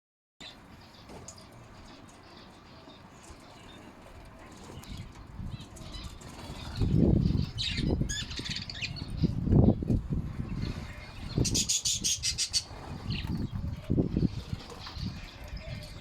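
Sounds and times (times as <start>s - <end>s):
small birds chirping and squawking: 0.4s - 16.0s
rapid high bird trill: 10.9s - 14.5s.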